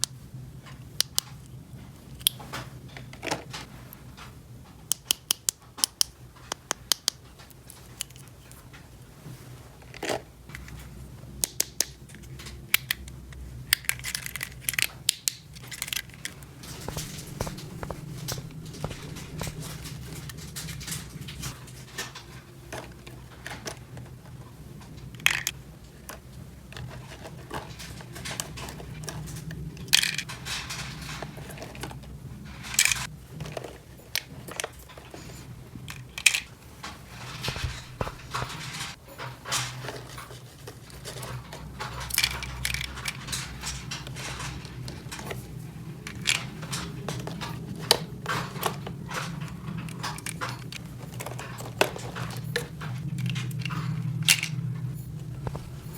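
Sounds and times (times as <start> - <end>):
plastic toy pieces clicking: 13.7 - 16.4
steady low hum: 16.5 - 21.6, 37.1 - 39.0, 52.7 - 55.9.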